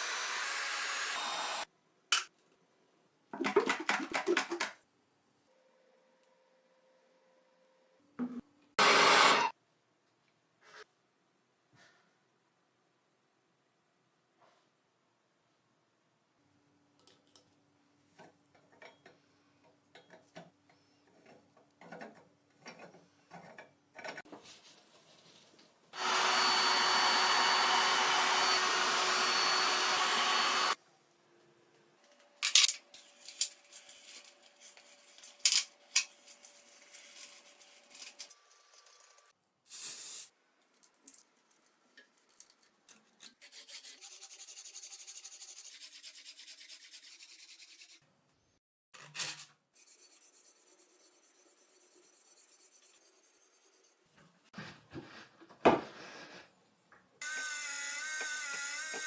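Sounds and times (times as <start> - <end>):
power tool running: 0.0 - 1.6, 8.8 - 9.5, 26.0 - 30.8.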